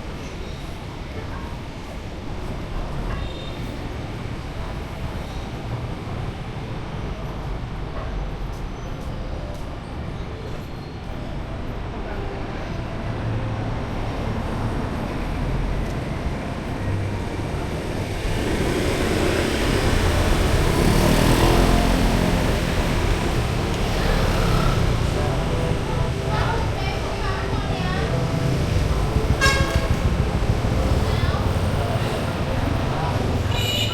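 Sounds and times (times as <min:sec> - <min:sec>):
street traffic rumble: 0:00.0 - 0:33.9
vehicle approaching: 0:13.0 - 0:33.9.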